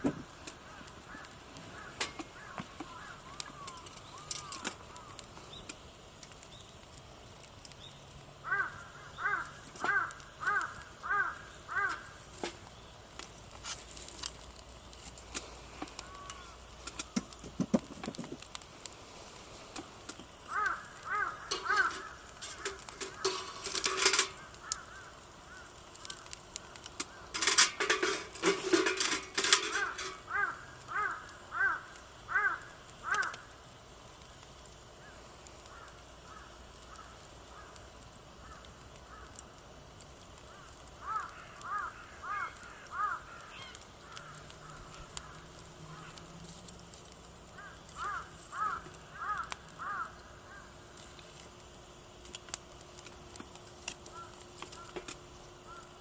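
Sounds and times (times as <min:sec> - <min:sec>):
sharp clicks and crackles: 0:00.0 - 0:56.0
crow cawing: 0:00.5 - 0:05.3, 0:08.4 - 0:12.3, 0:15.9 - 0:17.2, 0:20.4 - 0:33.6, 0:35.0 - 0:39.5, 0:40.4 - 0:46.3, 0:47.5 - 0:51.0, 0:54.0 - 0:56.0.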